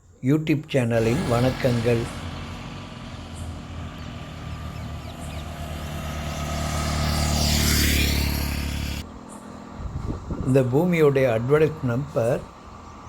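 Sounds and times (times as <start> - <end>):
vehicle engine humming: 1.0 - 9.8
road and wind hiss: 1.0 - 13.0.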